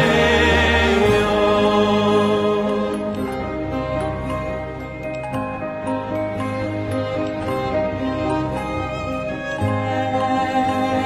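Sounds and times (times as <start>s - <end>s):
gentle instrumental music: 0.0s - 11.0s.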